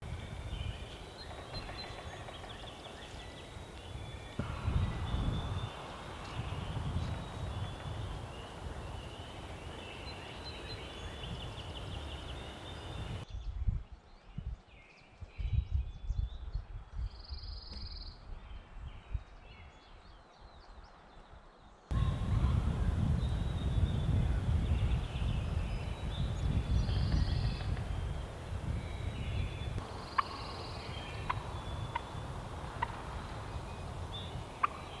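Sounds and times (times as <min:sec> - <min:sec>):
birds calling: 0:00.0 - 0:13.3, 0:21.9 - 0:35.0
wind buffeting microphone: 0:00.0 - 0:20.1, 0:21.9 - 0:35.0.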